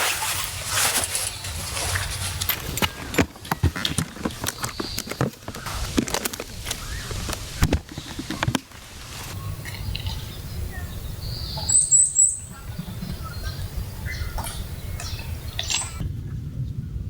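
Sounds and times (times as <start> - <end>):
low outdoor rumble: 0.4 - 17.0
bird chirping: 2.8 - 16.0.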